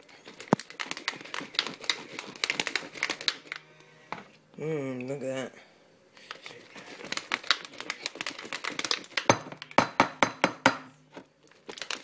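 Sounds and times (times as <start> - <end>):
ice cubes rattling in a shaken cup: 0.0 - 3.5, 6.4 - 9.3, 11.6 - 12.0.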